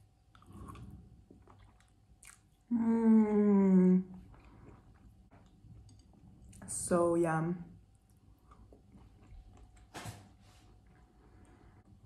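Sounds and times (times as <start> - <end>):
woman chewing noodles: 0.0 - 2.7, 4.1 - 6.6, 7.9 - 9.9
woman humming mmm: 2.7 - 4.1.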